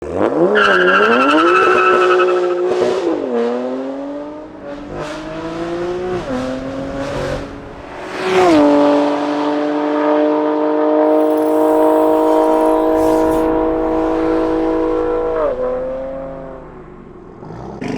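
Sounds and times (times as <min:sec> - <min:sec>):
car engine accelerating: 0:11.1 - 0:17.9
high squeal: 0:11.1 - 0:17.9.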